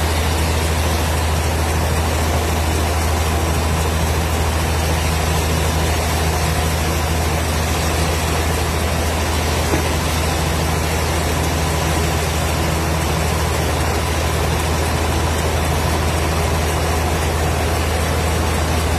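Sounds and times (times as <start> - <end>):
wood-cutting machine humming: 0.0 - 18.9.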